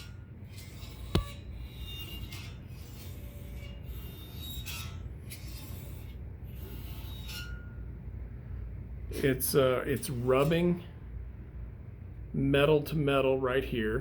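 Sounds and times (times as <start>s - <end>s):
metal joints scraping: 0.0s - 7.8s
spring squeaking: 0.0s - 7.9s.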